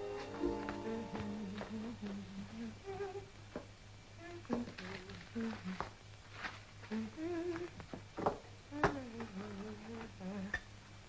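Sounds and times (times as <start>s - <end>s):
woman humming a slow tune: 0.0s - 3.4s, 4.2s - 5.9s, 6.8s - 7.8s, 8.7s - 10.7s
low mains hum: 0.0s - 11.0s.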